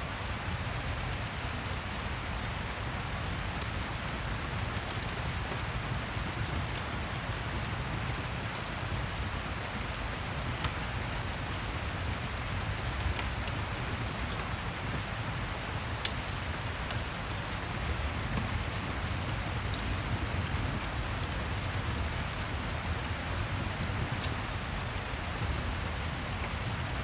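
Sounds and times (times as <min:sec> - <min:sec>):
rain hiss: 0:10.2 - 0:27.0.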